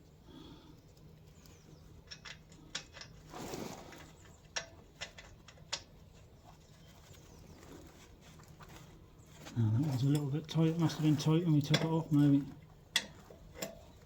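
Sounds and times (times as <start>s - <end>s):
hand tools clinking on metal: 9.7s - 13.9s.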